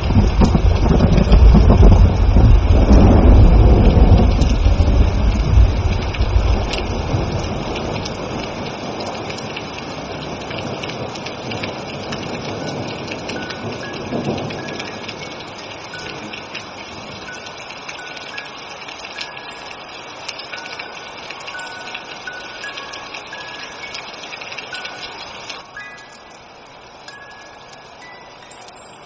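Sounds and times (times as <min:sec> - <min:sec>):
thunder rumble: 0:00.0 - 0:17.4
heavy rain: 0:00.0 - 0:29.0.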